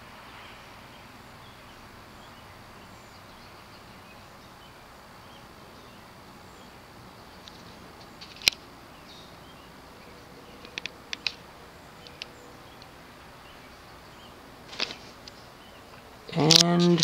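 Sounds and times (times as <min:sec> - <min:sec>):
low background hiss: 0:00.0 - 0:17.0
sharp clicks: 0:10.6 - 0:11.4, 0:14.7 - 0:17.0.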